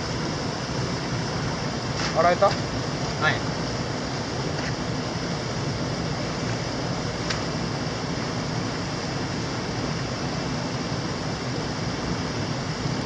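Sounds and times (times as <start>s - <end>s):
stream water rushing: 0.0s - 13.0s
sharp click: 7.2s - 7.4s.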